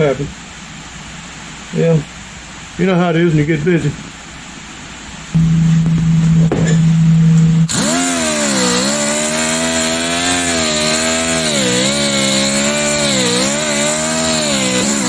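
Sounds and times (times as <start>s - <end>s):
power tool electric motor running: 7.7s - 15.0s.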